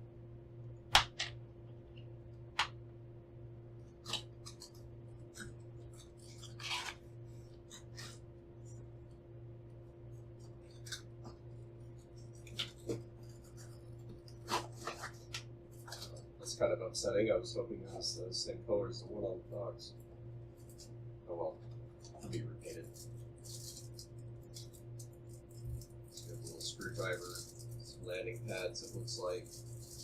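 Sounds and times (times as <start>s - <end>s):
steady low hum: 0.0s - 30.0s
packaging rustle: 22.1s - 30.0s.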